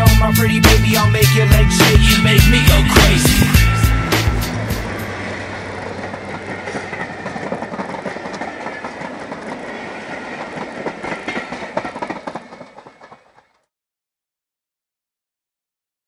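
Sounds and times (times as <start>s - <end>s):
diesel locomotive engine: 0.0s - 13.7s
wheels clicking over rail joints: 4.5s - 13.7s.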